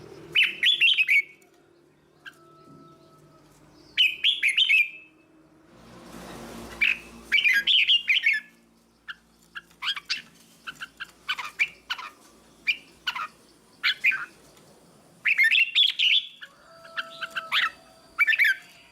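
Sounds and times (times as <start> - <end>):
sharp bird chirps: 3.8 - 5.1.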